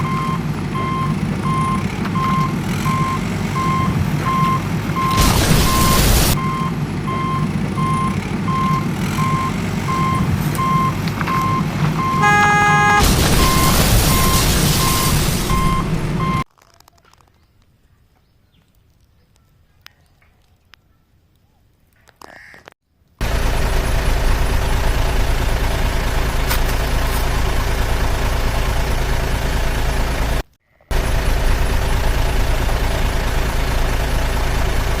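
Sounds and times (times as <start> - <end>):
reversing alarm beeping: 0.0 - 16.4
low engine rumble: 0.0 - 16.5, 23.2 - 35.0
hiss: 5.2 - 6.4
short chord of steady tones: 12.0 - 13.1.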